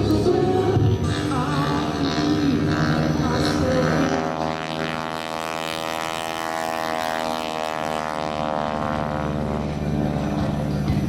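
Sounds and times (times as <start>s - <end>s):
propeller plane droning: 0.0s - 11.0s.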